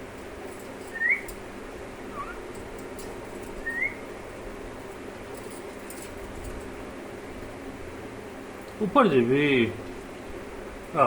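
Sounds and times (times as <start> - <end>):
steady low hum: 0.0 - 11.0
parrot whistled chirp: 0.9 - 1.3, 2.1 - 2.4, 3.6 - 4.0.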